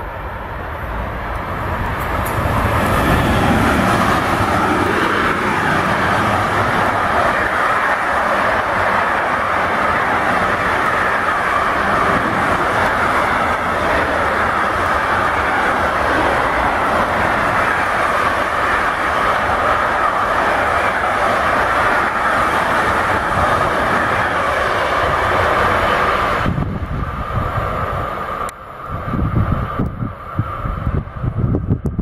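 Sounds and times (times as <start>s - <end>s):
wind buffeting microphone: 0.8s - 32.0s
freight train wheels clattering: 1.3s - 26.5s.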